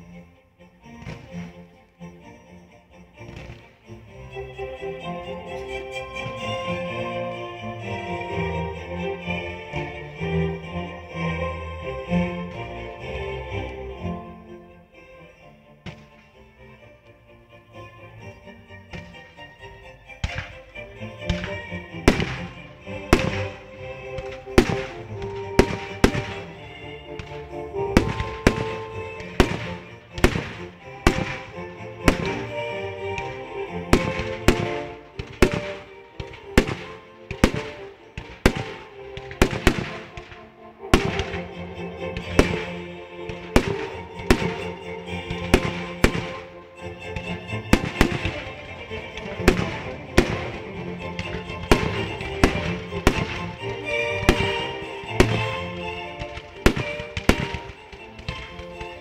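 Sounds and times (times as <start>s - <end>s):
music playing: 0.0s - 59.0s
firework shells bursting: 3.2s - 4.0s, 20.2s - 46.6s, 47.2s - 59.0s.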